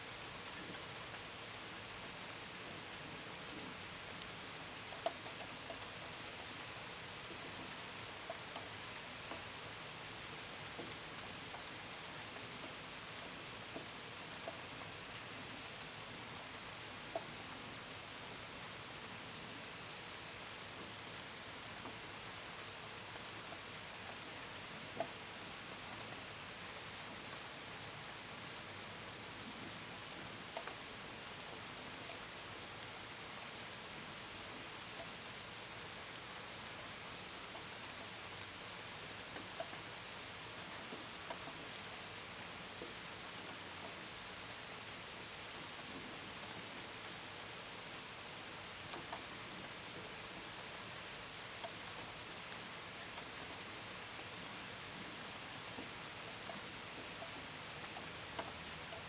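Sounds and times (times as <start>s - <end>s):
steady rain: 0.0s - 59.0s
crickets chirping: 14.2s - 22.0s, 30.2s - 38.2s, 41.3s - 59.0s.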